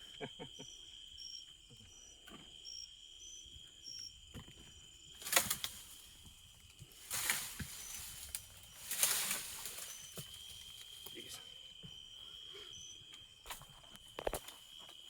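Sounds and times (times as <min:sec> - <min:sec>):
insects buzzing: 0:00.0 - 0:15.0
faint chirps: 0:07.2 - 0:13.5.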